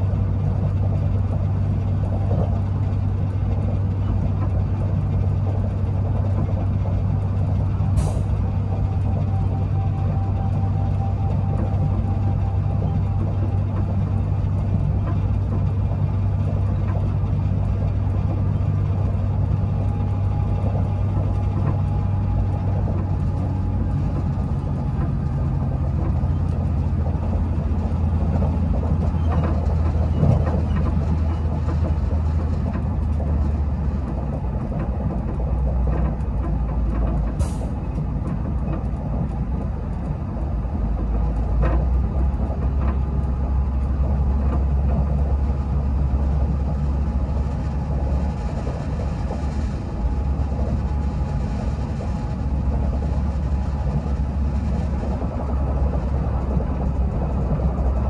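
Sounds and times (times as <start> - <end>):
train rumble inside carriage: 0.0 - 58.0.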